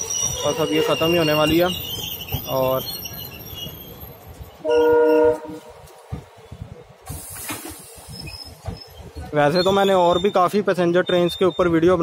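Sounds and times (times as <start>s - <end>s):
train horn blast: 4.6s - 5.8s
train wheels clattering over rail joints: 5.8s - 10.6s.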